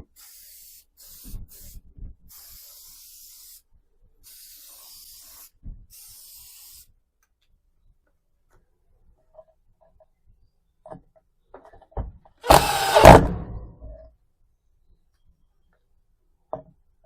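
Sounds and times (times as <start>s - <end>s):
spray bursts: 0.0s - 7.0s, 12.4s - 13.2s.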